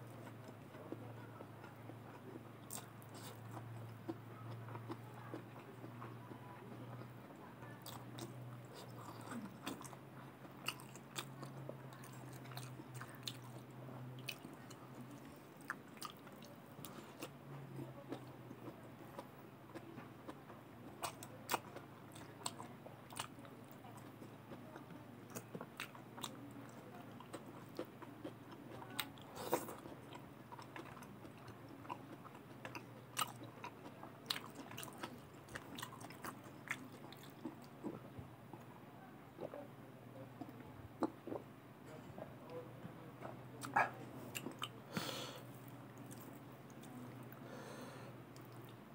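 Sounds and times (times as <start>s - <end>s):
low steady hum: 0.0s - 48.9s
person chewing food: 0.2s - 7.2s, 7.8s - 20.1s, 21.0s - 38.7s, 40.4s - 41.5s, 43.6s - 48.8s.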